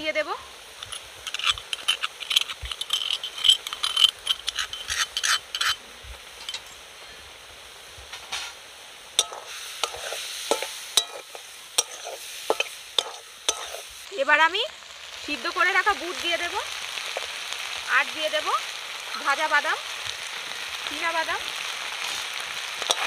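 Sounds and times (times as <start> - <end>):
vegetables sizzling in a pan: 0.0 - 23.0
scraping and tapping: 0.8 - 5.8, 9.2 - 13.8
spatula scraping a pan: 0.8 - 5.8, 9.2 - 14.0, 22.0 - 23.0.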